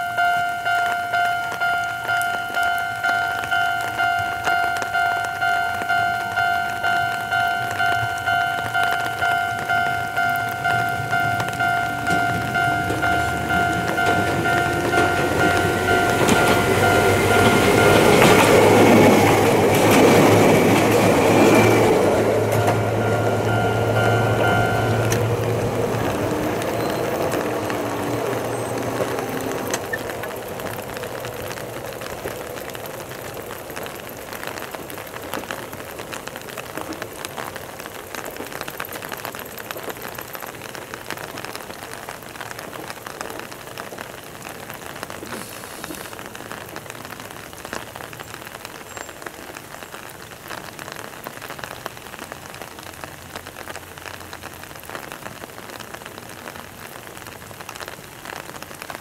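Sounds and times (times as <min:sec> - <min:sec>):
electric train running hum: 0:00.0 - 0:37.4
close raindrops pattering: 0:00.0 - 0:59.0
steady rain falling: 0:00.0 - 0:59.0.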